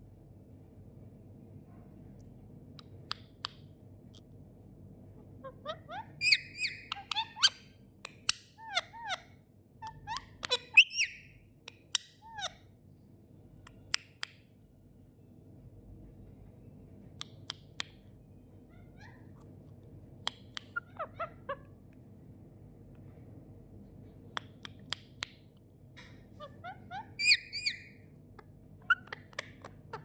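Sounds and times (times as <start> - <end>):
parrot chirping and whistling: 5.9 - 7.5, 10.0 - 11.3, 26.9 - 28.0.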